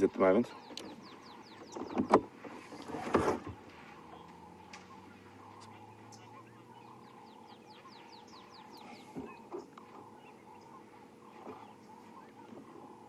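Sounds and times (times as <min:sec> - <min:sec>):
faint bush ambience: 0:00.0 - 0:13.0
low hum: 0:00.5 - 0:13.0.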